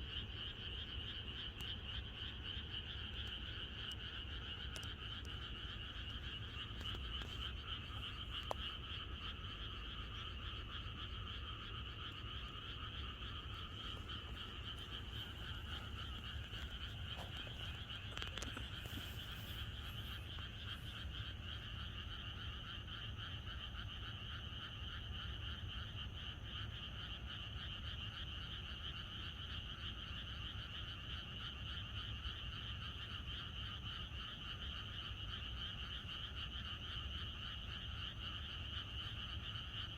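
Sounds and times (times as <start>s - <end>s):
frogs croaking in chorus: 0.0s - 39.9s.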